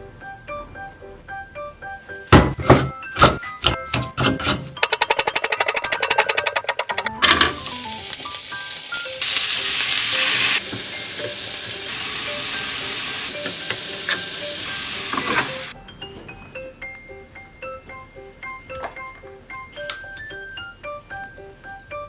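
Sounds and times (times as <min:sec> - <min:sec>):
light background music: 0:00.0 - 0:22.0
whisk beating in a bowl: 0:04.8 - 0:07.1
food sizzling in oil: 0:07.3 - 0:15.8.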